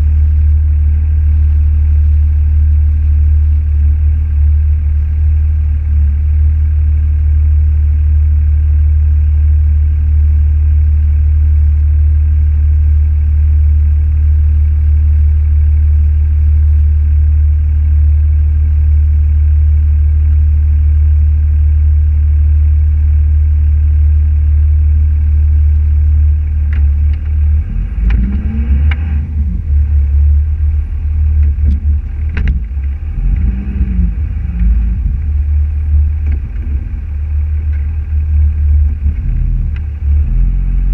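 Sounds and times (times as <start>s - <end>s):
car engine and road noise: 0.0s - 9.2s, 25.0s - 40.9s
clicks and knocks: 31.4s - 33.0s.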